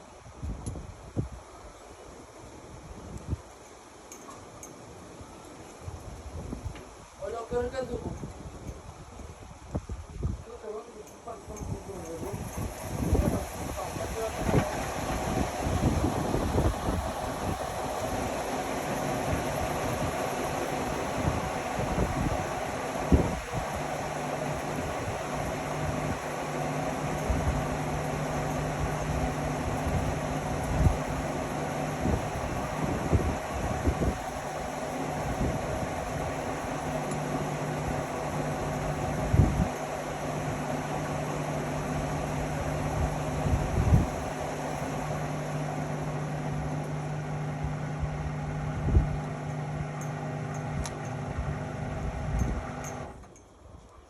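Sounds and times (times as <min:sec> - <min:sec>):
washing machine running: 0:12.2 - 0:53.2.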